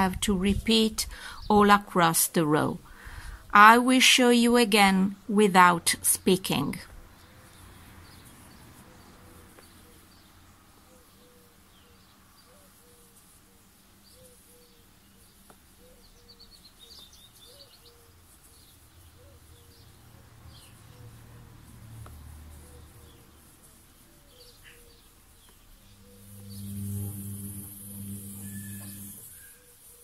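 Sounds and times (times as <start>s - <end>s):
birds chirping: 22.7s - 29.6s
low hum: 25.7s - 29.4s.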